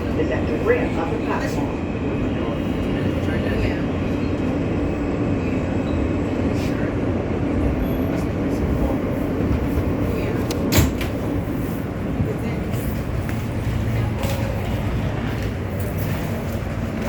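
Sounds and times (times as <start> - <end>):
subway train rumbling hum: 0.0 - 17.0.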